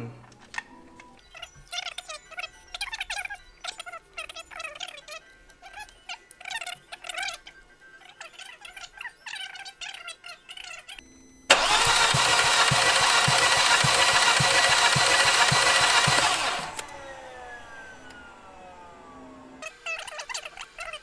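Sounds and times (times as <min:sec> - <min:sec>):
engine cranking on starter: 0:11.5 - 0:20.0.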